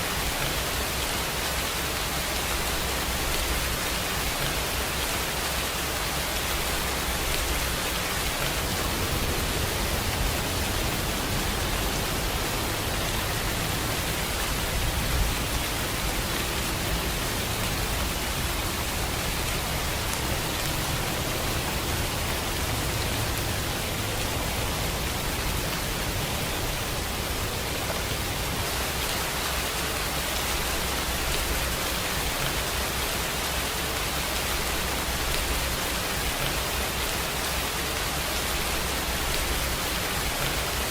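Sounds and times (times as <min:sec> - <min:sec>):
steady rainfall hiss: 0:00.0 - 0:40.9.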